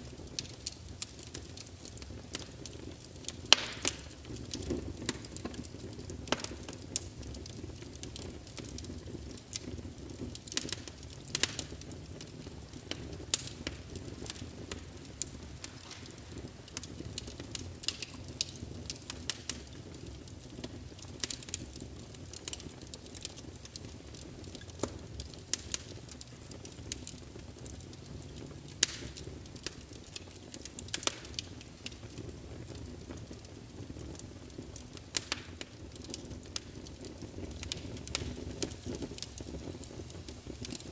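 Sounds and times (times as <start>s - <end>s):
low rumble of flames: 0.0s - 40.9s
wood fire crackling: 0.0s - 40.9s.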